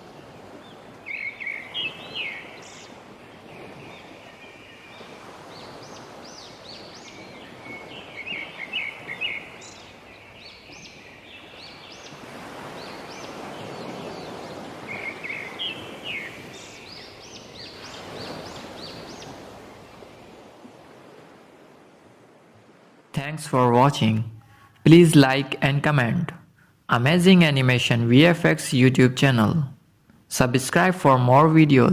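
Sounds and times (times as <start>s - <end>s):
birds chirping: 0.0s - 21.2s.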